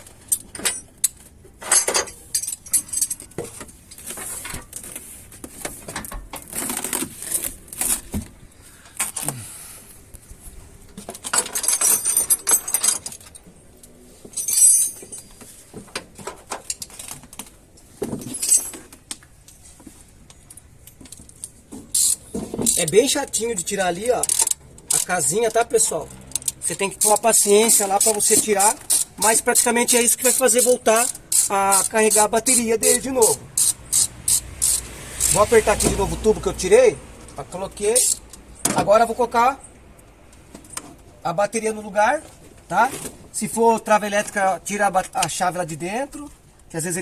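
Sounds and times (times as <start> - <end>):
metal tools clinking and scraping: 0.0 - 8.1, 10.9 - 36.4, 37.8 - 39.6.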